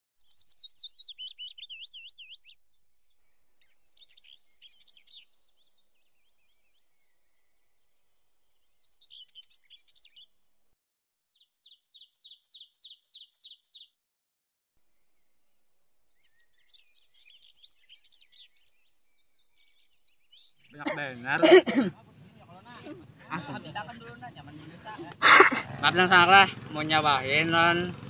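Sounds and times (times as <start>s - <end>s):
small birds chirping and singing: 0.2s - 10.4s, 11.3s - 14.0s, 15.0s - 21.4s.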